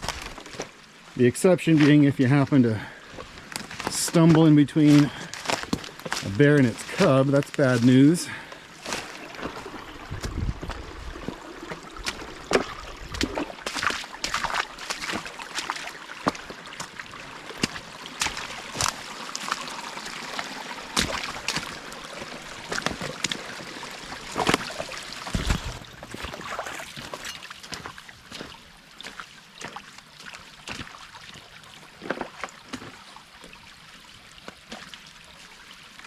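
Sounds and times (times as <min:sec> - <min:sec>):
footsteps crunching on forest floor: 0:00.0 - 0:00.8, 0:01.7 - 0:11.4, 0:12.0 - 0:17.0, 0:17.6 - 0:19.7, 0:21.0 - 0:23.4, 0:24.2 - 0:30.9
creek trickling: 0:00.0 - 0:36.0.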